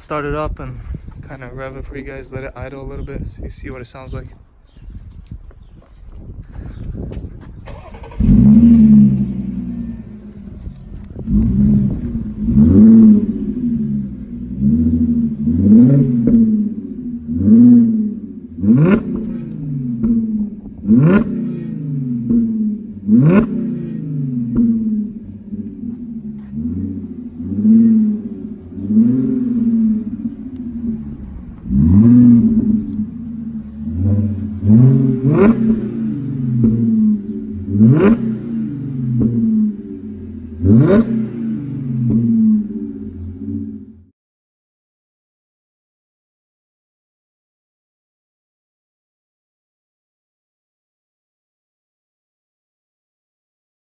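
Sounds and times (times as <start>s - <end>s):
car engine starting and revving: 7.4s - 44.1s.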